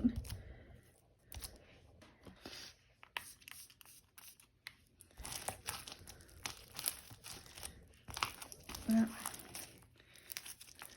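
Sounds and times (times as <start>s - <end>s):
slime popping and crackling: 5.1s - 10.9s.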